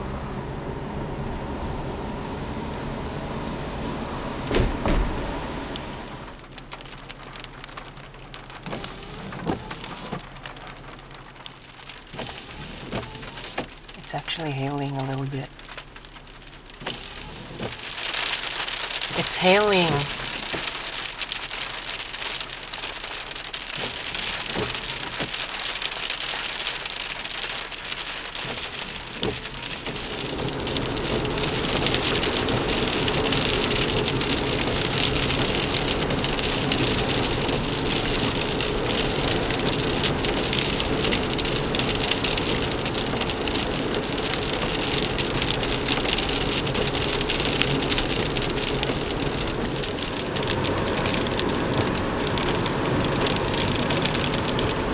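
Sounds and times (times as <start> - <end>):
steady low rumble: 0.0 - 9.4
hail and rain pattering: 4.6 - 54.9.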